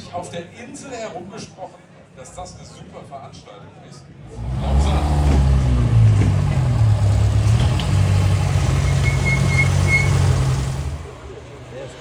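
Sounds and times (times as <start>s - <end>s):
car engine running at low revs: 4.2s - 12.0s.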